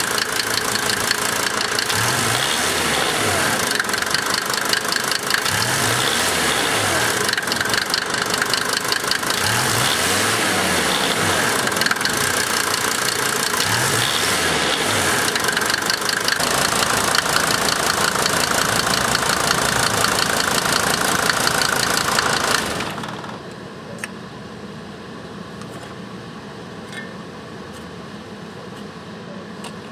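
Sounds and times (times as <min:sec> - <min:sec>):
diesel engine idling roughly: 0:00.0 - 0:09.8, 0:10.7 - 0:14.2, 0:15.0 - 0:23.5.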